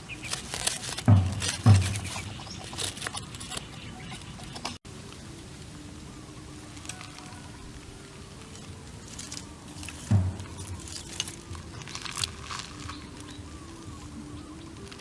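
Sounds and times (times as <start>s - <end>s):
crunching and rustling: 0.0s - 15.0s
dull thud: 0.9s - 2.7s, 9.9s - 12.8s.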